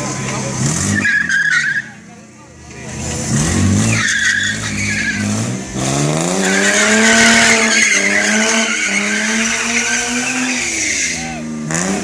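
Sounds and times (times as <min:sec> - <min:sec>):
car engine revving: 0:00.0 - 0:12.0
tyres squealing on pavement: 0:00.2 - 0:02.1, 0:02.7 - 0:05.4, 0:06.2 - 0:11.6.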